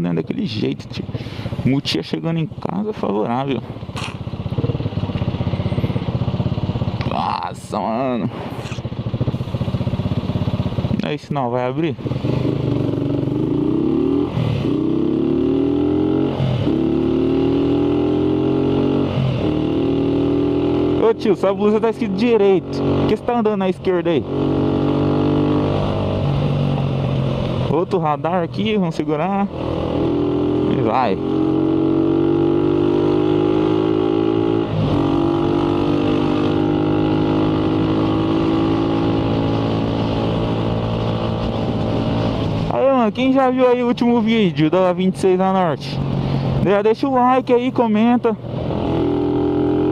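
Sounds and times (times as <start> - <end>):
motorcycle engine accelerating: 0.4 - 49.9.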